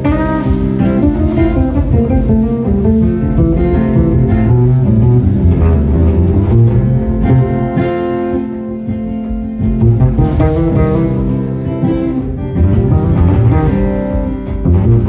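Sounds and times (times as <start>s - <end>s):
bass melodic solo: 0.0s - 8.2s, 9.8s - 15.0s
acoustic guitar: 0.0s - 15.0s.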